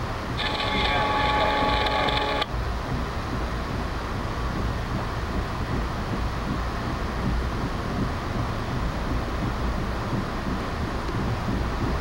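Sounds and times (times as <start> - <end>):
train rumble inside coach: 0.0 - 12.0
chord of steady tones: 0.4 - 2.5.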